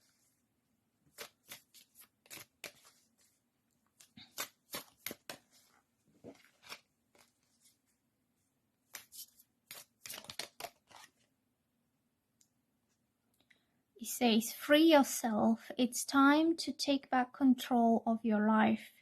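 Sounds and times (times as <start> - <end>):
cards being shuffled: 1.1 - 7.9, 8.9 - 11.3.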